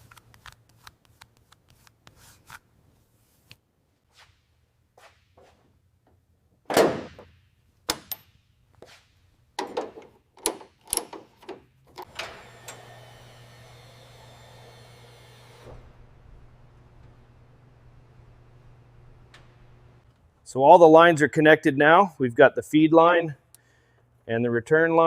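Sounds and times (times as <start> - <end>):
metallic knocks and clicks: 9.6 - 12.1
steady whirring: 12.0 - 20.0.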